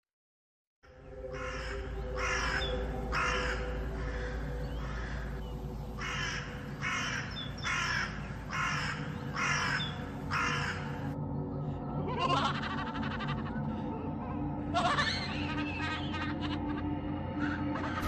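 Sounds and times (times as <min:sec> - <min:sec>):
crow cawing: 0:01.2 - 0:11.2, 0:12.1 - 0:13.9, 0:14.7 - 0:18.0.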